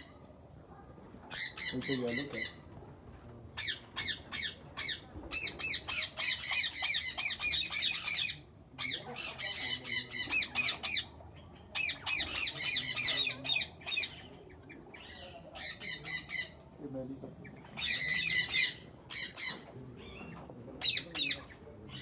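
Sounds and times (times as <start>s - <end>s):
parrots squawking: 3.6s - 11.1s, 11.8s - 14.3s, 17.5s - 22.0s.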